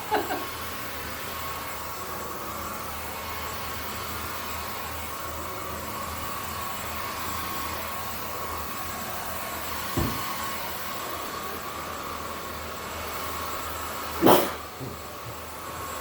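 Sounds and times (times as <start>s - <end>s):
stick vacuum running: 0.0s - 16.0s
short knock: 10.0s - 10.2s.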